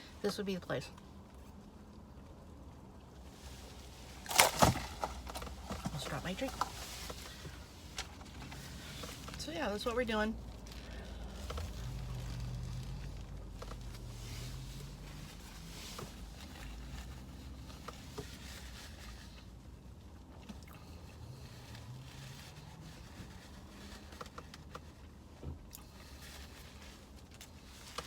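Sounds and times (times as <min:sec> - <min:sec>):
low steady hum: 0:00.0 - 0:28.0
paper wrapping rustling: 0:04.1 - 0:09.4
person chewing food: 0:20.3 - 0:21.8.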